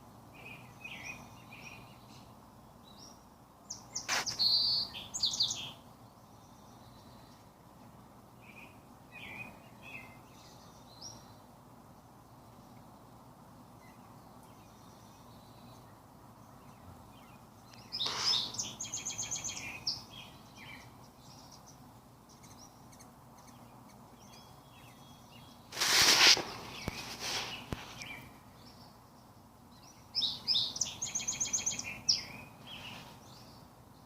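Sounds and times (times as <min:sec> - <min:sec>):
low background hiss: 0:00.0 - 0:34.0
wild birds chirping: 0:00.0 - 0:34.0
rapid bird chattering call: 0:17.9 - 0:20.1.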